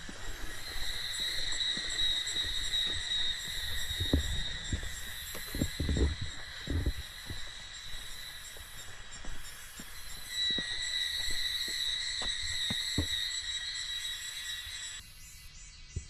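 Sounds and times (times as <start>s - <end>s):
cicadas buzzing: 0.0s - 16.0s
soft low knocks: 3.6s - 8.1s.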